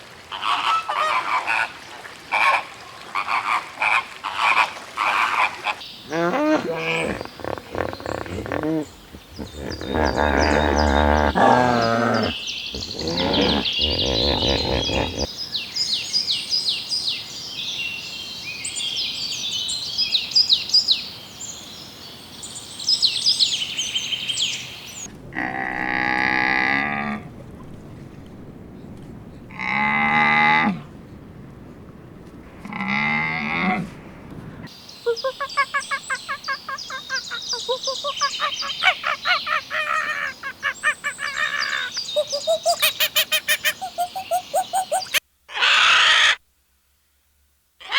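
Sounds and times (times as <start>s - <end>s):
birds chirping: 5.8s - 15.7s, 34.7s - 45.2s
farm animal calling: 6.1s - 15.3s.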